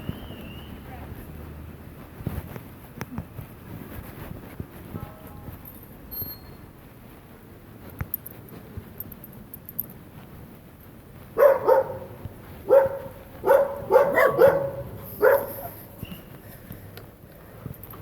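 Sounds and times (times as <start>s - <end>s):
dog barking: 11.4s - 15.7s.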